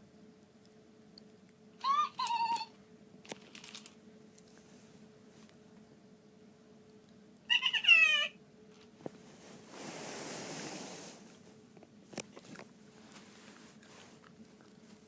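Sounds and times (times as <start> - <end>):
talking toy electronic call: 1.8 - 2.8, 7.5 - 8.4
soft hiss: 8.6 - 11.8.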